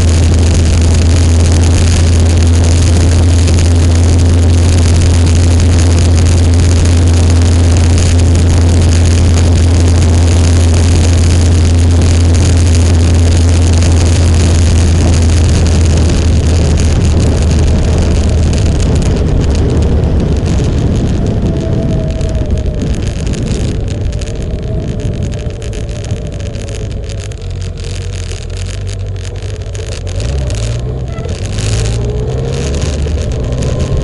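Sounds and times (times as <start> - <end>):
motorcycle engine drone: 0.0 - 34.0
rushing wind: 0.0 - 34.0.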